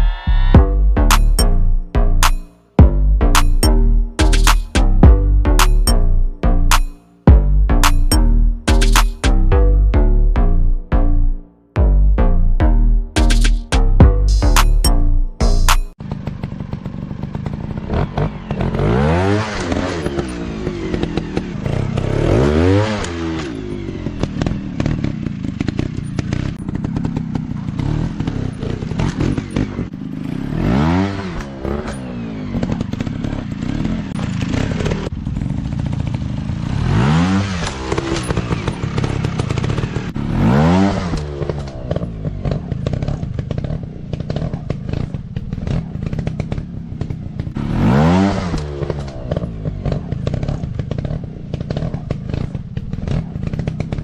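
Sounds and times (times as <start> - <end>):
dirt bike engines revving: 13.2 - 54.0.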